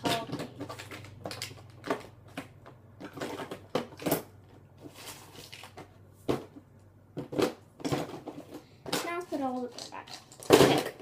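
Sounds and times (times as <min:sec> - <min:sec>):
containers knocking and clattering: 0:00.0 - 0:11.0
rustling: 0:04.8 - 0:06.5.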